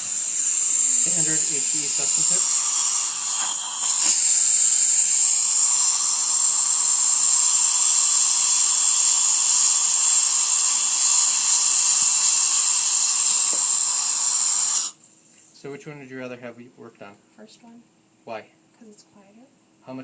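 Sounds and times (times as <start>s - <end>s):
high suction whistle: 0.0s - 15.0s
dental suction rushing air: 0.0s - 15.6s.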